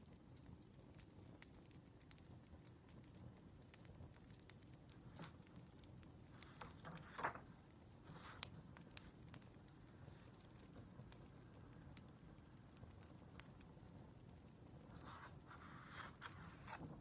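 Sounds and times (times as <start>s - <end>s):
wood fire crackling: 0.0s - 17.0s
soft rustle: 4.9s - 17.0s.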